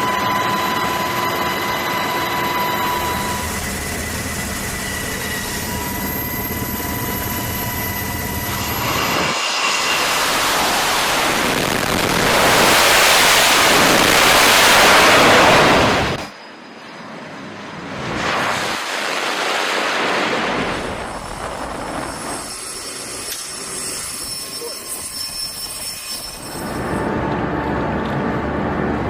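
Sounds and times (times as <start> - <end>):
jet roar: 0.0 - 25.6
jet engine whine: 0.0 - 29.0.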